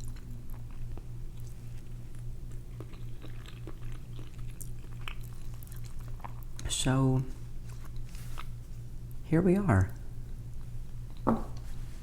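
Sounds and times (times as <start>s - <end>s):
close chewing: 0.0s - 6.8s, 7.6s - 8.6s
steady low hum: 0.0s - 12.0s.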